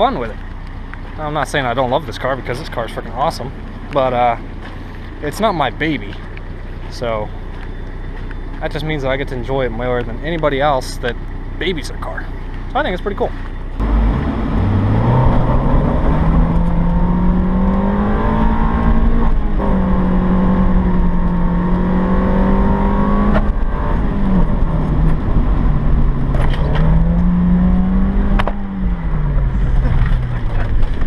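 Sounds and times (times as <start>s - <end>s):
car engine revving hard: 13.8s - 30.8s.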